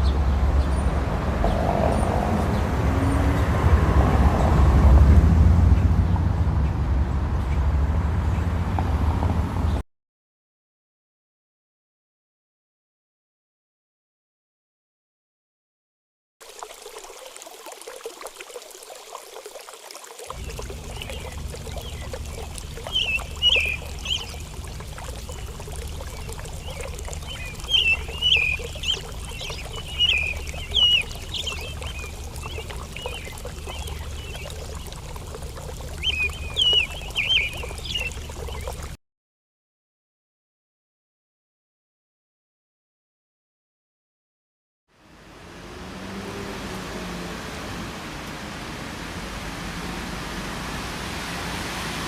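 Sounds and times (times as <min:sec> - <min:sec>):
water trickling: 0:16.4 - 0:39.0, 0:45.0 - 0:52.0.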